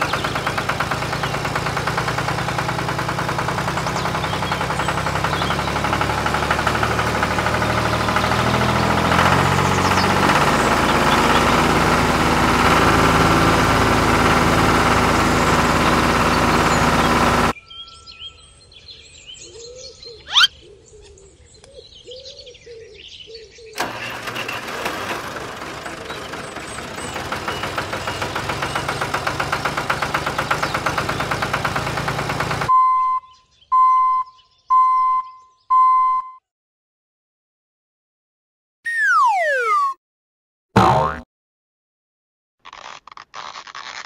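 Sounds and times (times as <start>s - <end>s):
motor chugging: 0.0s - 17.6s, 23.8s - 32.7s
faint bird chirps: 17.6s - 23.8s, 32.8s - 36.2s
short beeps: 32.7s - 36.4s.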